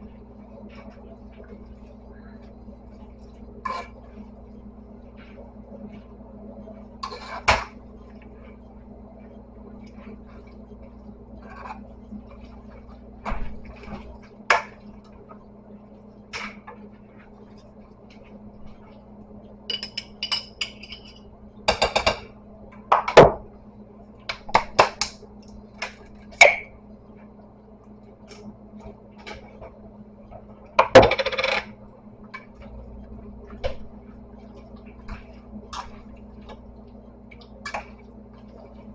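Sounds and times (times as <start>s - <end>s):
steady low hum: 0.0s - 38.9s
kitchen utensils clinking: 19.7s - 22.2s.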